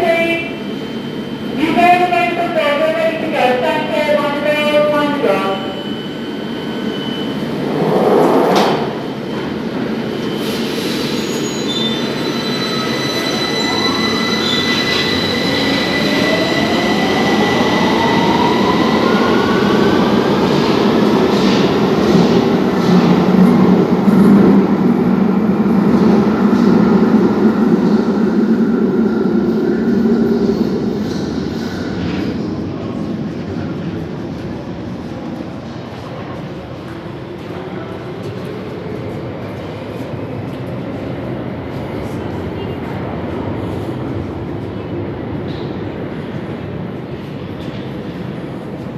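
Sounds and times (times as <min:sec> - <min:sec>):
wheels rumbling on rail: 0:06.8 - 0:11.0.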